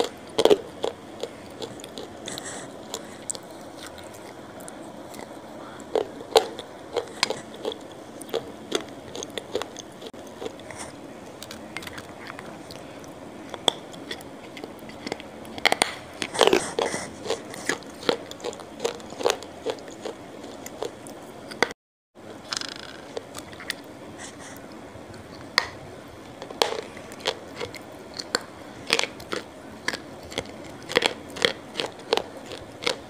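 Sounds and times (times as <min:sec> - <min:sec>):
person chewing food: 0:00.0 - 0:21.8, 0:22.5 - 0:33.0.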